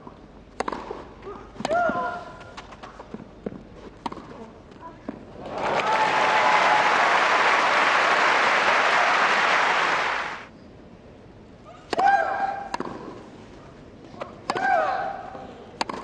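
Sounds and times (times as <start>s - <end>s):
racket striking ball: 0.6s - 1.0s, 11.9s - 13.2s, 14.4s - 14.8s, 15.8s - 16.0s
crowd applauding: 5.4s - 10.5s.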